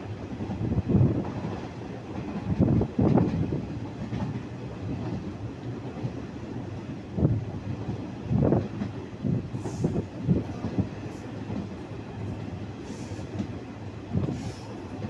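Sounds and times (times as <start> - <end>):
train wheels rumbling on rail: 0.0 - 15.0
clickety-clack knocks: 0.5 - 6.2, 7.9 - 9.0, 13.3 - 13.6.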